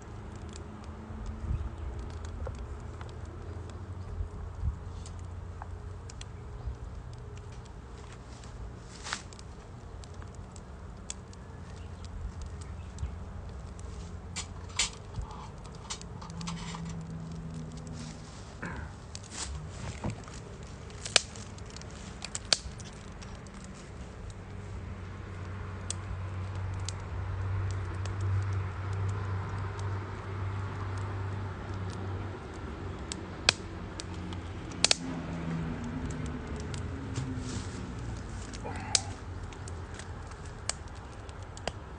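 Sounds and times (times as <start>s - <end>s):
wood fire crackling: 0.0s - 41.9s
sharp fire pops: 18.6s - 23.7s, 33.1s - 41.8s.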